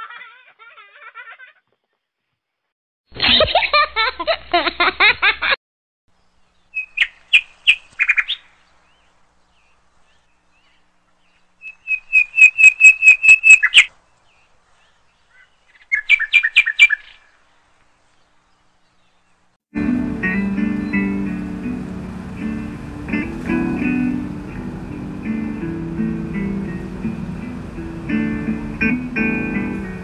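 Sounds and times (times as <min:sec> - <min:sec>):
small bird chirping: 0:06.2 - 0:17.4.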